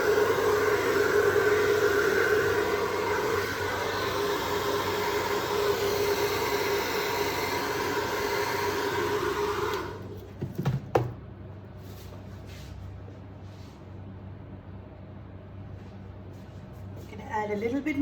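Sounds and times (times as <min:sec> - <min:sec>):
electric blower motor whine: 0:00.0 - 0:10.2.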